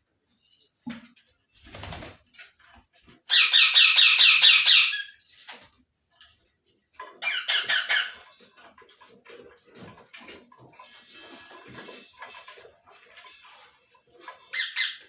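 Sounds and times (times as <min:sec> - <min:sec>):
parakeet squawking: 0:03.3 - 0:05.2, 0:07.2 - 0:08.2.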